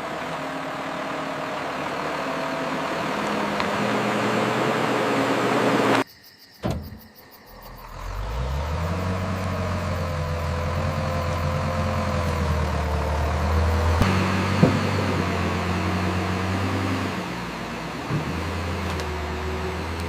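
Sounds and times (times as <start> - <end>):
logging machine engine running: 0.0 - 6.0, 7.9 - 20.0
click: 18.8 - 19.1.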